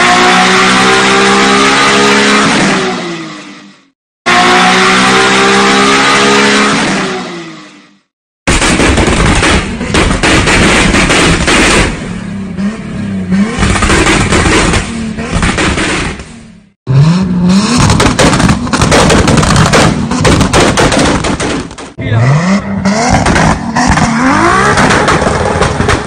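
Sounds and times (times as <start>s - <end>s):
car engine revving: 0.0s - 8.0s, 11.1s - 20.6s, 22.0s - 26.0s
exhaust pops and crackles: 13.6s - 16.3s, 17.7s - 22.0s, 23.1s - 26.0s.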